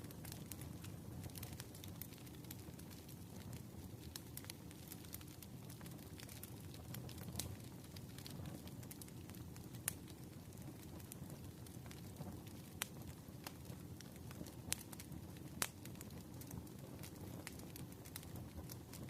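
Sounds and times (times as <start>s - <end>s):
fire crackling and popping: 0.0s - 19.0s
low fire rumble: 0.0s - 19.0s.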